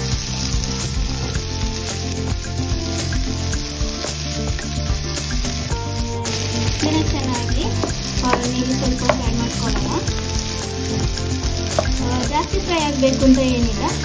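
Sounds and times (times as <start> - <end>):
vegetables sizzling in oil: 0.0 - 14.0
spatula knocking against pan: 7.6 - 10.0, 11.7 - 12.0.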